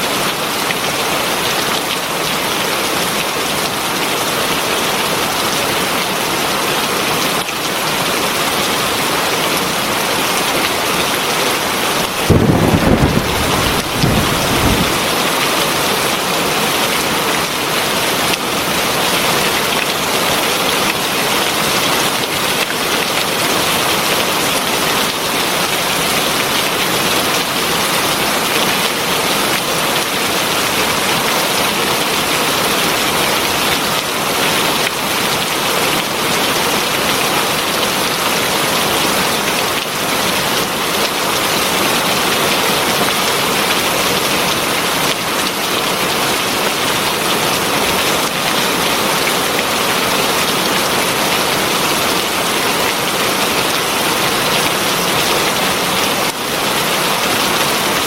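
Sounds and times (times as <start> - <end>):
heavy rain falling: 0.0 - 58.0
thunder rumble: 12.2 - 15.3.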